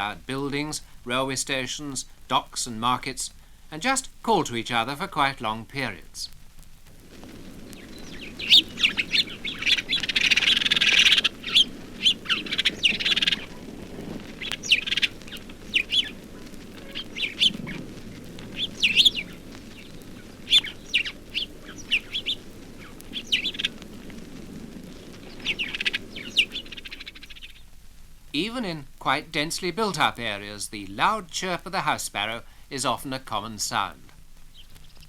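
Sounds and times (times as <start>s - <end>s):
sparrows chirping: 7.0s - 27.8s, 28.4s - 35.0s.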